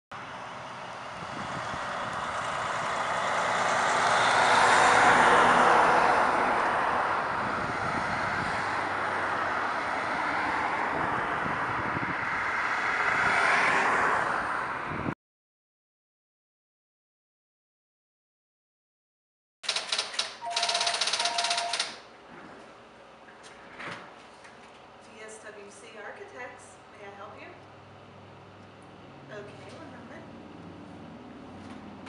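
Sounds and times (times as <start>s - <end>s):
road traffic rushing: 0.1s - 15.2s, 27.7s - 32.0s
vehicle passing: 0.2s - 15.1s, 29.0s - 32.0s.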